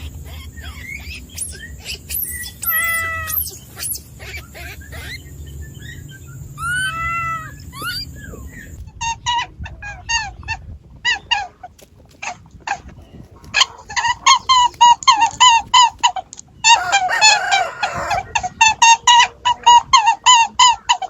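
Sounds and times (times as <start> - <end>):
animal high falling chirps: 6.6 - 8.2.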